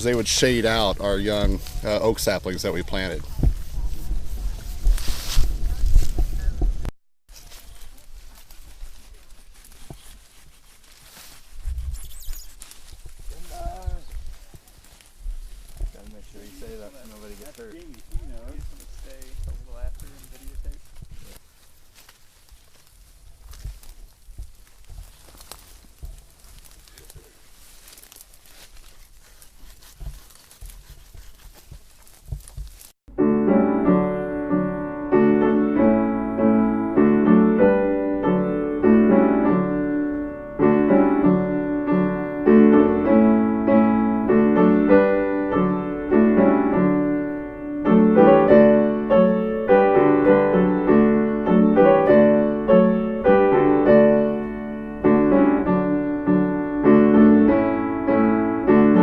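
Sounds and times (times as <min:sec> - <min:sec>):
solo piano music: 0:33.1 - 0:59.0.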